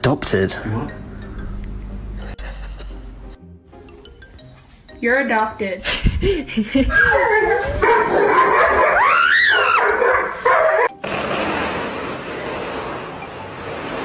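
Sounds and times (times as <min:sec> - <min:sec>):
dog whining and howling: 0:06.9 - 0:11.0.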